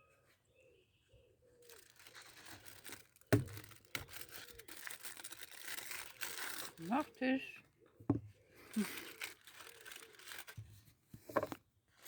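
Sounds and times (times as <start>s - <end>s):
food wrapper crinkling and tearing: 1.6s - 7.2s, 8.6s - 10.8s.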